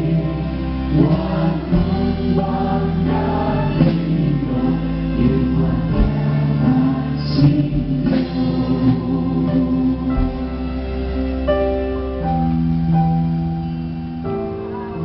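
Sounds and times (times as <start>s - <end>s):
group singing a hymn: 0.0s - 11.6s
instrumental accompaniment: 0.0s - 15.0s.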